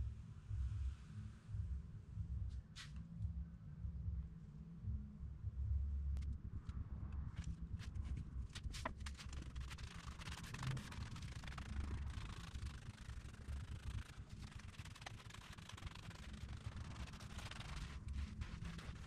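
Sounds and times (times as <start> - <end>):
low rumble: 0.0 - 19.0
brush scratching on carpet: 8.8 - 19.0.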